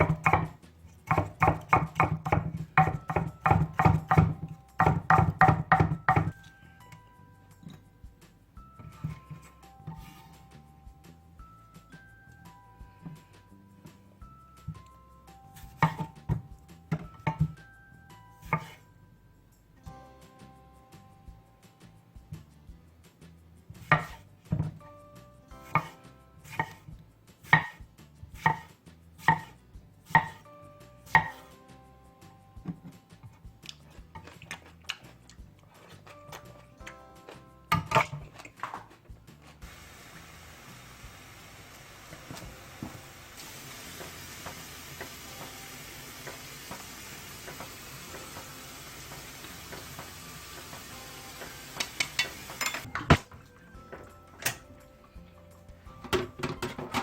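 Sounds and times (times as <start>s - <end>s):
faint background music: 0.0s - 57.0s
steady hiss: 39.6s - 49.4s.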